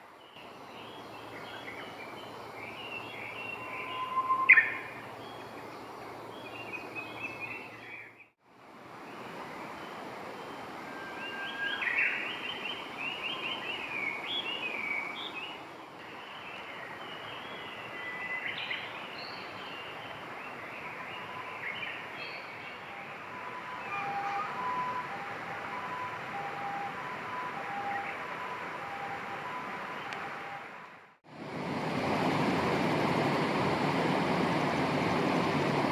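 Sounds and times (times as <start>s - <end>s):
steady outdoor hiss: 0.0s - 35.9s
small birds chirping: 0.2s - 8.4s.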